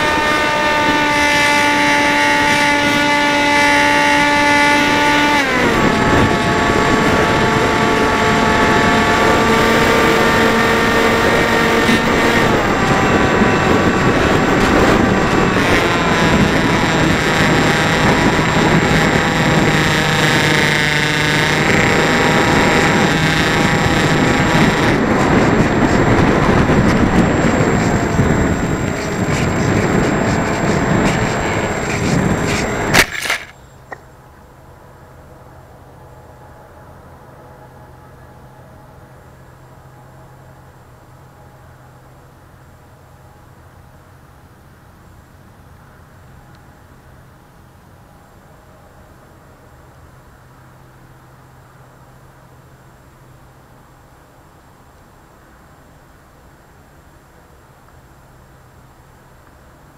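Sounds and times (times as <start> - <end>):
electric motor and propeller whining: 0.0 - 34.0
wind rushing: 5.6 - 20.5, 21.5 - 33.0.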